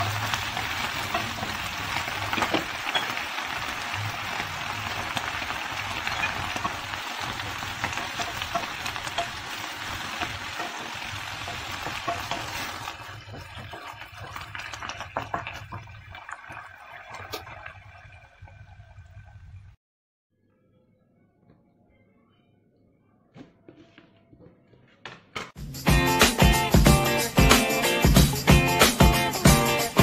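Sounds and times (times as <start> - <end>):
lettuce sizzling in frying pan: 0.0 - 15.8
wooden spatula clicks and scrapes: 5.0 - 15.7.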